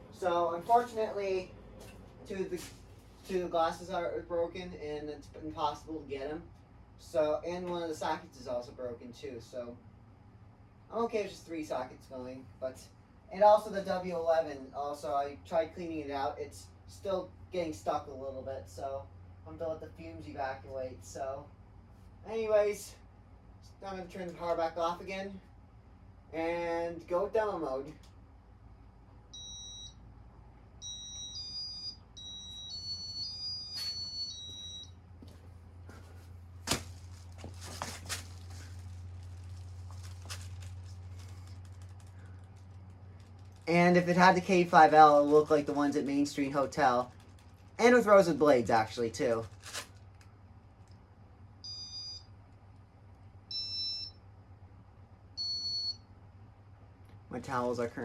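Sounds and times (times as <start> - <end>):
fan humming: 0.0 - 58.0
electronic beeps: 30.8 - 35.0.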